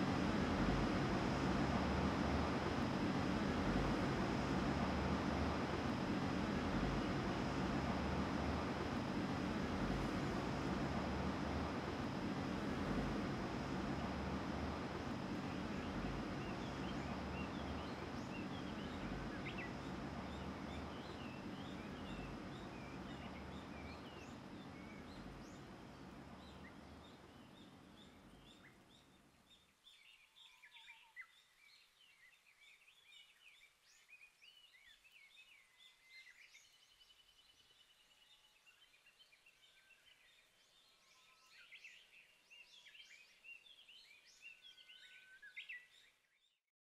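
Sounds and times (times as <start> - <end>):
low rumbling noise: 0.0 - 29.0
faint bird chirps and calls: 26.4 - 46.5.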